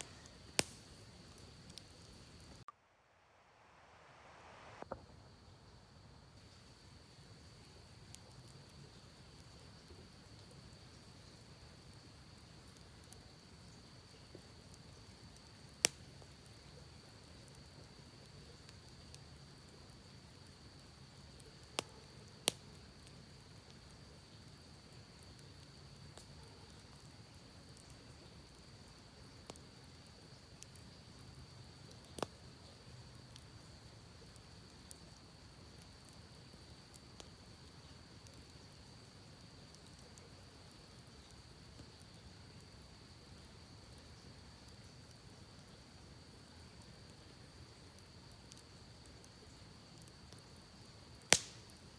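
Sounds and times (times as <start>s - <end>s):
sharp pops of fire: 0.0s - 2.8s, 14.1s - 19.8s, 20.4s - 31.2s, 31.8s - 42.8s, 51.1s - 51.9s
campfire crackling: 0.0s - 51.9s.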